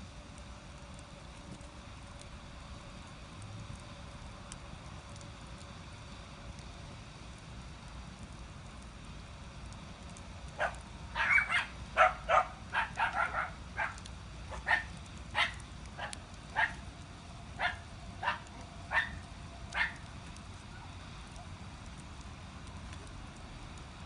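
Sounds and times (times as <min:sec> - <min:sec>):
dog barking: 0:10.6 - 0:16.8, 0:17.6 - 0:19.2, 0:19.8 - 0:20.0.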